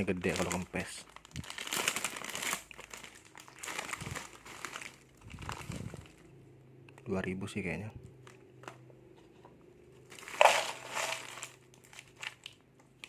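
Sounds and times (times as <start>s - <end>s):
plastic snack packet crinkling: 0.0s - 6.3s, 10.0s - 13.0s.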